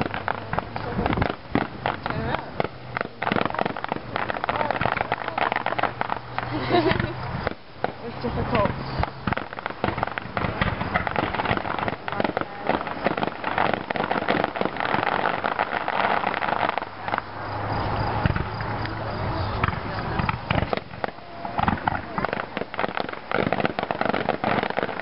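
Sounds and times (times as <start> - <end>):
fireworks popping and crackling: 0.0 - 25.0.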